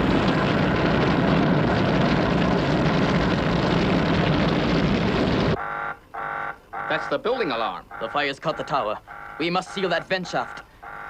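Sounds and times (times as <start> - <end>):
fire roaring: 0.0 - 5.6
alarm buzzing: 5.6 - 7.2, 7.8 - 11.0.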